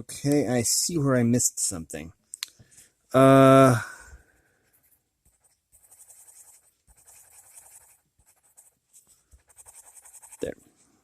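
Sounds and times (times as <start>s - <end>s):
colored pencil scratching on paper: 4.6s - 10.8s.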